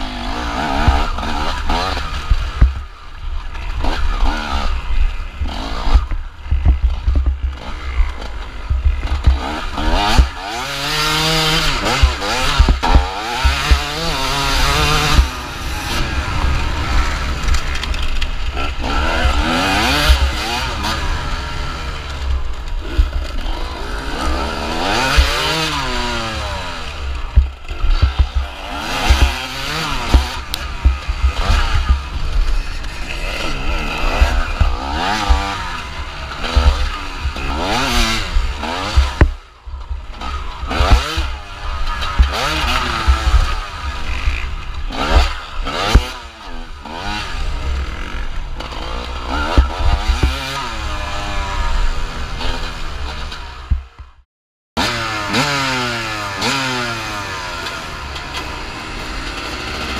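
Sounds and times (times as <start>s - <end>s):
motorcycle engine revving: 0.0s - 54.2s, 54.8s - 59.9s
wind rumble on microphone: 12.1s - 24.4s.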